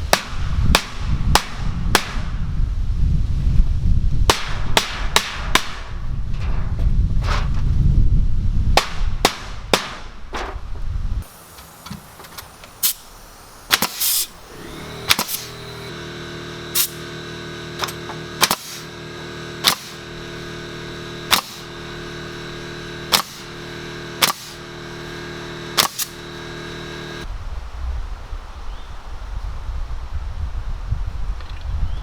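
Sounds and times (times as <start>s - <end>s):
nail gun firing into wood: 0.1s - 2.3s, 4.3s - 6.0s, 8.8s - 10.6s, 13.7s - 15.9s, 16.8s - 17.1s, 17.8s - 20.6s, 21.2s - 22.3s, 23.0s - 24.6s, 25.7s - 26.6s
steady droning hum: 11.1s - 27.3s.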